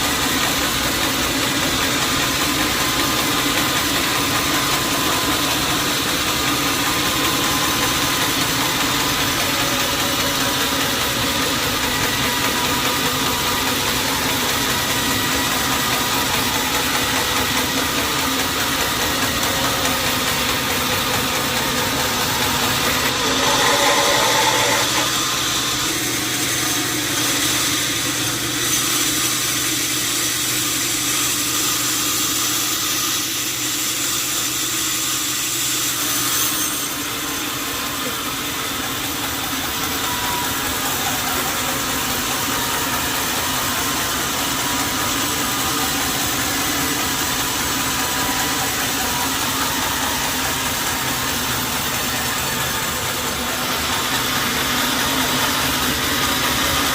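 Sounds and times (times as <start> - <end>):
sawmill machinery running: 0.0 - 56.9.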